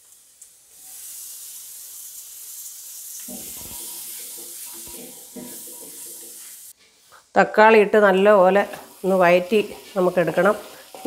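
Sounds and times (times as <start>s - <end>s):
tomatoes sizzling in oil: 0.0s - 11.0s
wooden spatula scraping pan: 3.3s - 7.0s.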